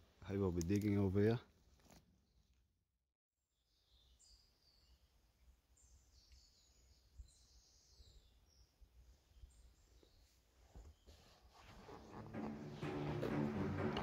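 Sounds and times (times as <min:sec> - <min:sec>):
birds chirping and trilling: 0:05.8 - 0:11.2.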